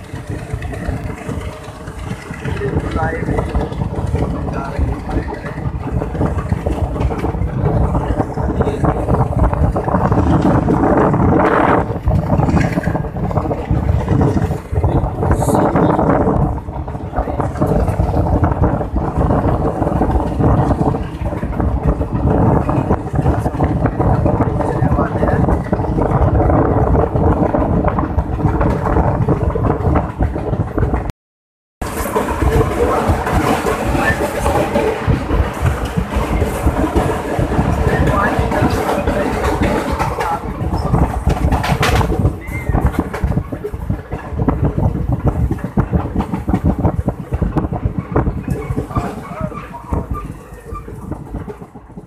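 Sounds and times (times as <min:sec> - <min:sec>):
rattling clatter: 0:00.0 - 0:31.1, 0:31.8 - 0:52.0
train wheels rushing and knocking: 0:00.0 - 0:31.1, 0:31.8 - 0:52.0
wind buffeting microphone: 0:00.0 - 0:31.1, 0:31.8 - 0:52.0.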